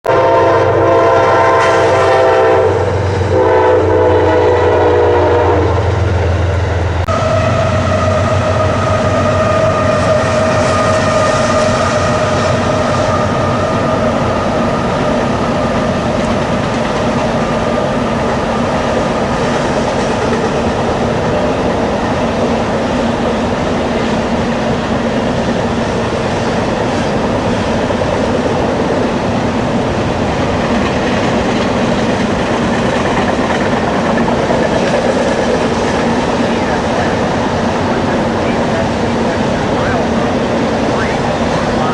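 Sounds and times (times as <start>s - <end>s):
locomotive horn blasts: 0.1s - 6.0s, 7.1s - 13.6s
train rolling past: 0.1s - 41.9s.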